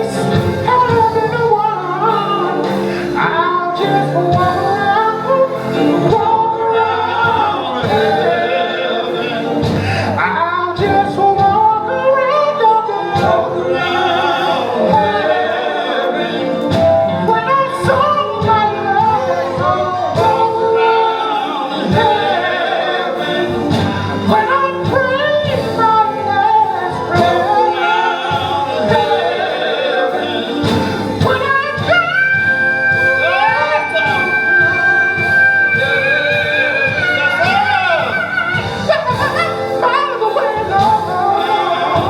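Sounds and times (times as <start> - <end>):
bass guitar: 0.0 - 42.0
male voices singing gospel: 0.0 - 42.0
drum hits: 13.2 - 42.0.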